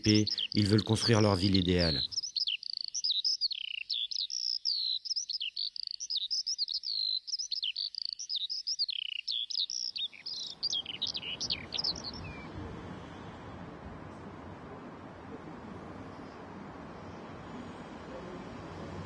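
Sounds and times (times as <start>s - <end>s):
low street noise: 0.0s - 2.2s, 10.0s - 19.0s
birds chirping: 0.0s - 19.0s.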